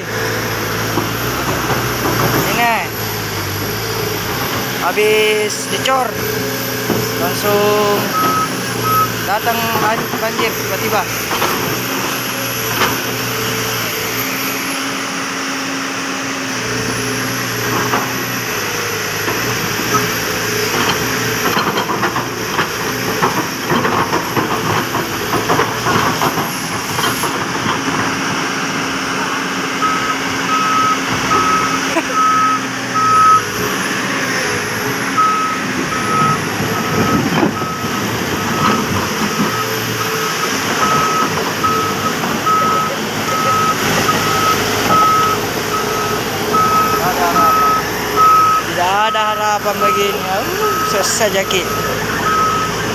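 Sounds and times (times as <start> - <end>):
diesel engine running: 0.0 - 52.9
backup alarm beeping: 7.3 - 11.2, 29.8 - 33.6, 35.1 - 52.9.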